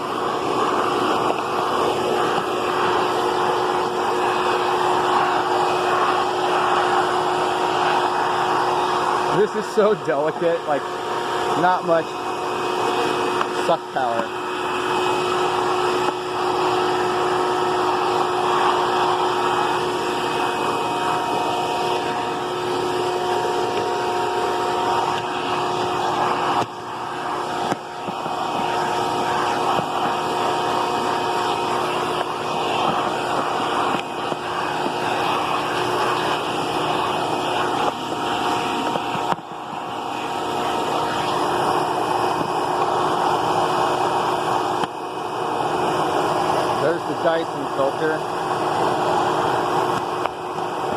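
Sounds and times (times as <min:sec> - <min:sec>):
vacuum cleaner running: 0:00.0 - 0:50.9.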